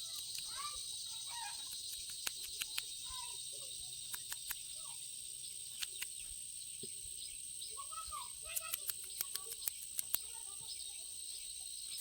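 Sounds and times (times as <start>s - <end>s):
sharp clicks: 0.0s - 0.6s, 1.6s - 3.0s, 4.0s - 4.7s, 5.7s - 6.2s, 8.5s - 10.3s
bird calls: 0.0s - 12.0s
insects droning: 0.0s - 12.0s.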